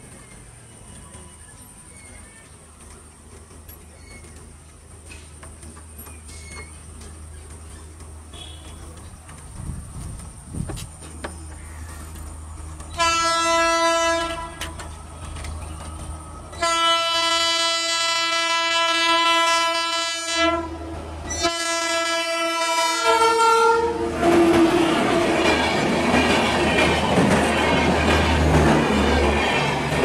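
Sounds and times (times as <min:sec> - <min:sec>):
train wheels running past: 0:00.0 - 0:30.0
locomotive horn blasts: 0:08.3 - 0:08.8, 0:12.9 - 0:14.8, 0:16.6 - 0:20.8, 0:21.4 - 0:24.9.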